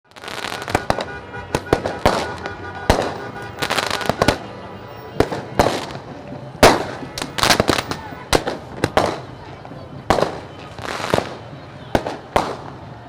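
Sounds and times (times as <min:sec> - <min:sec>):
fireworks bangs and pops: 0:00.1 - 0:13.0.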